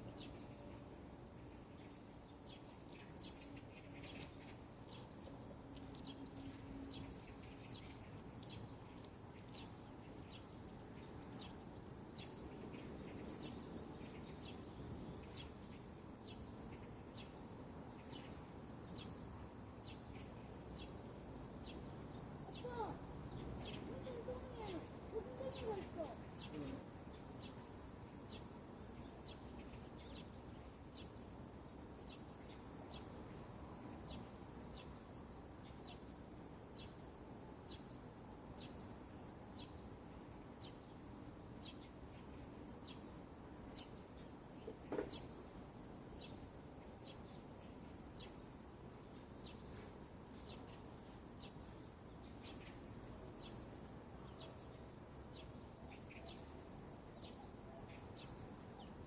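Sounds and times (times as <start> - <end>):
soft background hiss: 0.0 - 59.0
bird calling: 22.5 - 23.0, 23.6 - 26.8.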